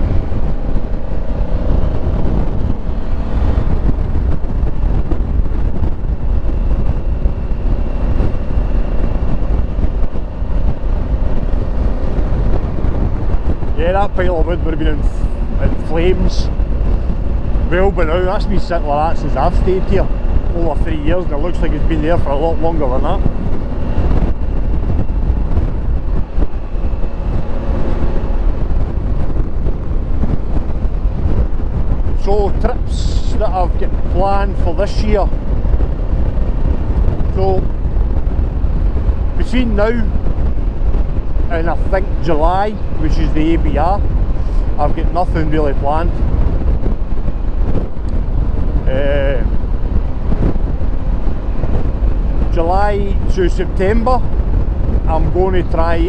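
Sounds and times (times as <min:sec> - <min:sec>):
motorcycle engine: 0:00.0 - 0:43.0
wind rush: 0:00.0 - 0:56.0.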